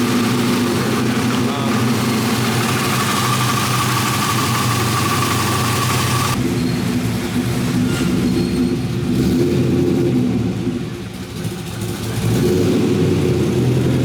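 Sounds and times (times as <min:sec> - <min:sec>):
car engine running after cold start: 0:00.0 - 0:09.2.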